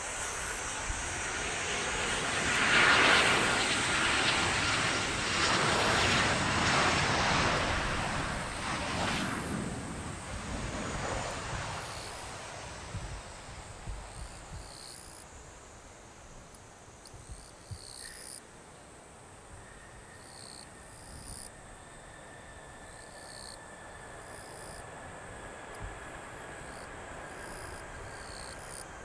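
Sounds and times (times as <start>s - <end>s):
insects chirping: 0.0s - 29.0s
jet engine noise: 0.0s - 29.0s.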